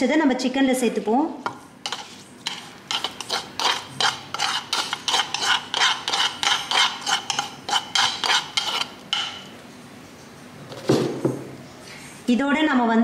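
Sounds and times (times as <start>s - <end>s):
metal spoon scraping mortar: 1.8s - 9.5s.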